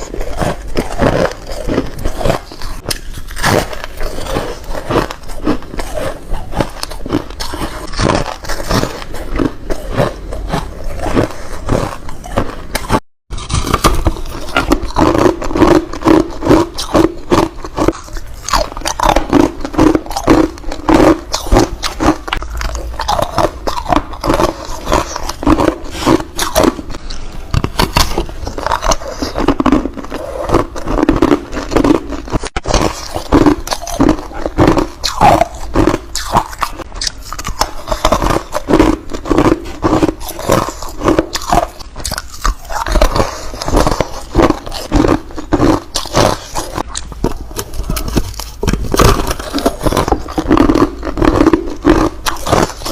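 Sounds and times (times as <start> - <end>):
crunchy ice chewing: 0.0 - 52.9.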